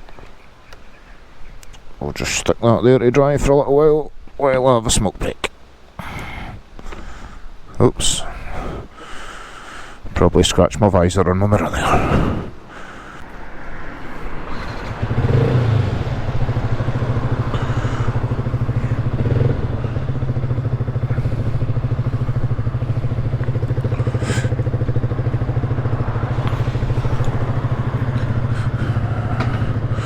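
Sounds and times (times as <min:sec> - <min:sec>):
motorcycle engine idling: 0:11.6 - 0:30.0.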